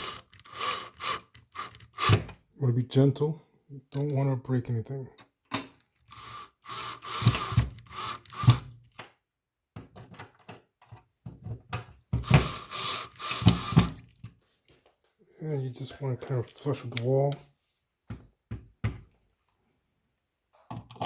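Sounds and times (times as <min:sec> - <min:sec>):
screwdriver ratcheting clicks: 0:00.0 - 0:02.3, 0:06.1 - 0:08.6, 0:12.2 - 0:14.0.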